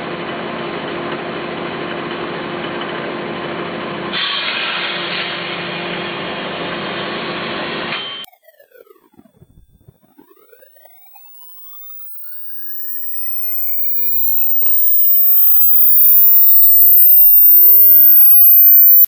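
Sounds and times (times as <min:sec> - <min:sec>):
synthetic sweeping tones: 0:08.2 - 0:19.0.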